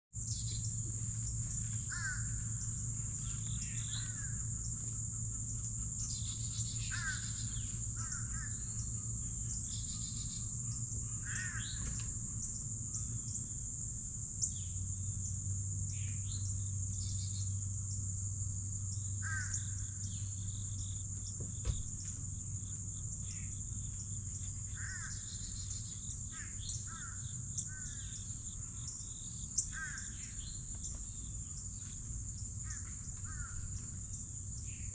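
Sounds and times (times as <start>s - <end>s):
high-pitched insect drone: 0.2s - 34.9s
songbirds calling harshly: 0.2s - 34.9s.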